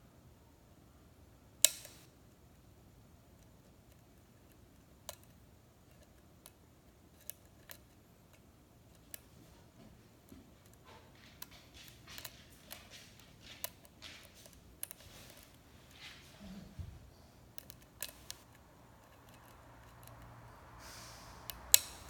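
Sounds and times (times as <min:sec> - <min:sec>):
lock pick metallic clicks: 0:01.6 - 0:02.1
light scraping of lock pick: 0:17.6 - 0:20.4.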